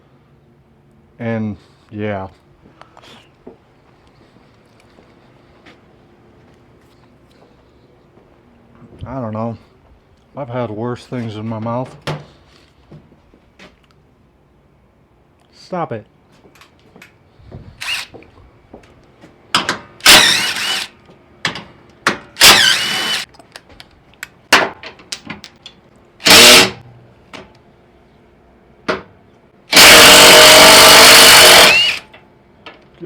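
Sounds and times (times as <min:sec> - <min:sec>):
impact wrench bursts: 0:17.8 - 0:18.1, 0:20.0 - 0:21.0, 0:22.3 - 0:23.3, 0:26.2 - 0:26.8, 0:29.7 - 0:32.1.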